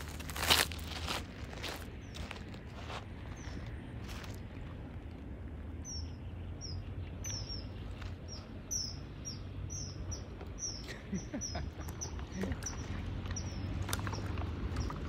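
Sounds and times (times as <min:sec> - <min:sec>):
low outdoor rumble: 0:00.0 - 0:15.0
small bird chirping: 0:05.8 - 0:15.0.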